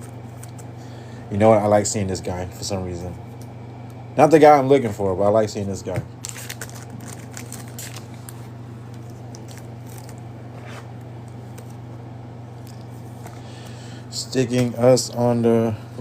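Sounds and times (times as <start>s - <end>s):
cards crinkling being handled: 0.0s - 0.8s, 5.9s - 11.9s, 12.6s - 13.5s
low electrical hum: 0.0s - 16.0s.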